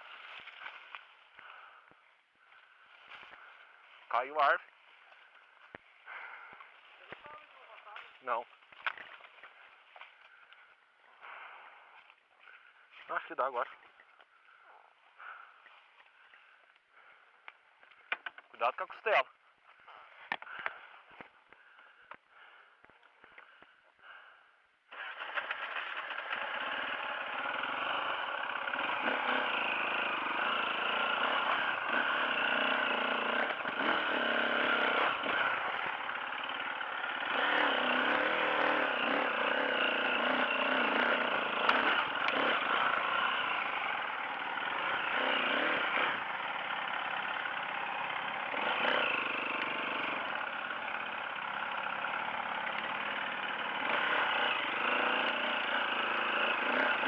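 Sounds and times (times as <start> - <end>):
dirt bike engine revving: 24.9 - 57.0.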